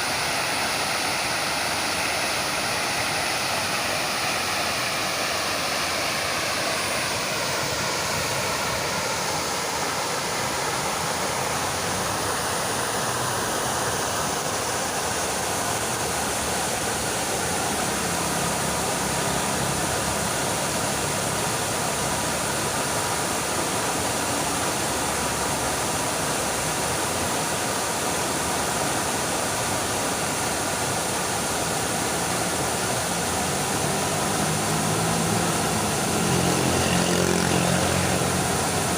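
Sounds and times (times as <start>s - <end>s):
fountain water splashing: 0.0s - 38.9s
faint engine drone: 30.4s - 38.9s.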